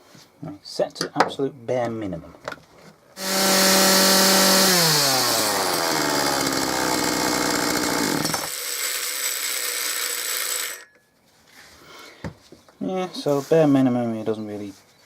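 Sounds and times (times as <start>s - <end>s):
chainsaw revving: 3.2s - 10.8s.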